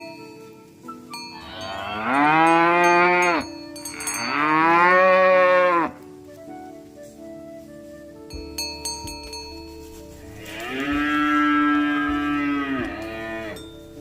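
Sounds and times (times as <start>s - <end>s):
cow mooing: 1.4s - 3.4s, 4.0s - 6.0s, 10.3s - 13.7s.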